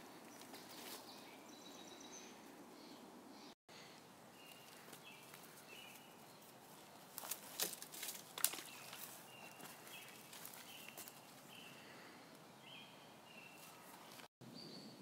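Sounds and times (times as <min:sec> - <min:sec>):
thin bird chirps: 0:08.6 - 0:12.0.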